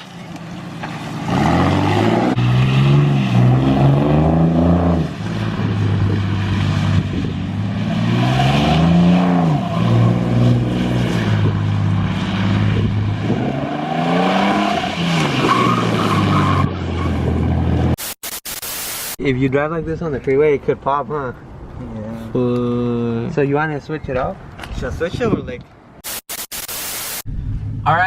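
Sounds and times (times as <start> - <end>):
tires spinning and squealing: 0.5 - 17.9.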